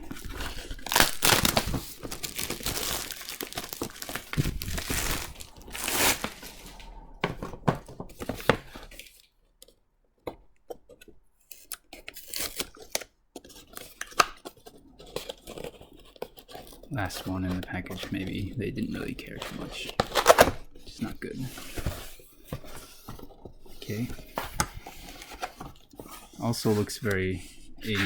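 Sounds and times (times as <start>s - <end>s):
packaging tearing and rustling: 0.0s - 7.1s, 11.5s - 16.9s, 19.9s - 20.6s
packaging crackles: 0.0s - 8.6s.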